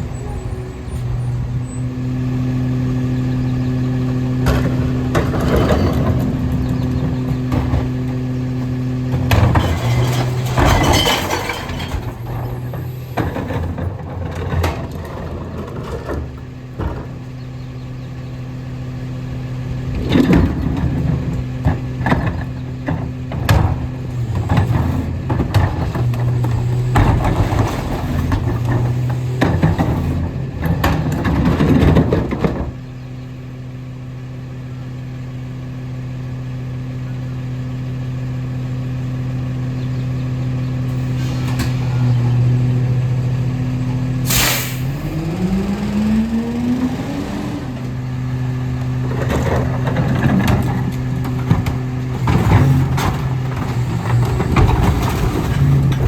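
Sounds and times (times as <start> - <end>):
garbage truck engine: 0.0 - 56.0
loud clattering and rattling: 9.1 - 17.2, 49.0 - 56.0
air brakes hissing: 44.2 - 45.1.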